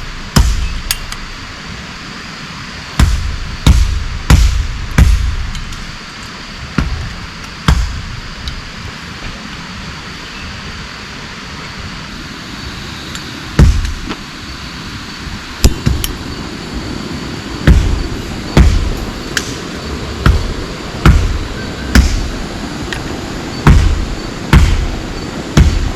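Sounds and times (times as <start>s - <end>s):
sharp heavy thuds: 0.0s - 1.4s, 3.0s - 6.0s, 6.6s - 8.4s, 13.6s - 14.2s, 15.6s - 16.3s, 17.6s - 19.6s, 20.2s - 22.5s, 23.6s - 25.9s
heavy rain hissing: 0.0s - 25.9s.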